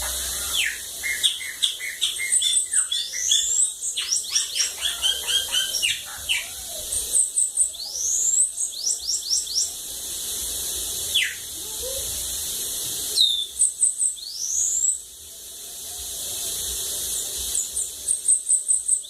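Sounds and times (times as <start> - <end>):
bird singing rapid high chirps: 0.0 - 9.8, 11.1 - 11.5, 13.2 - 15.0.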